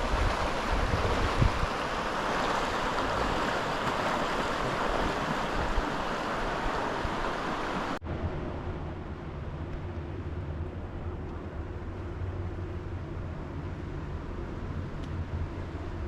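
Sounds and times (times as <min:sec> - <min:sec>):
low hum: 0:08.0 - 0:16.0.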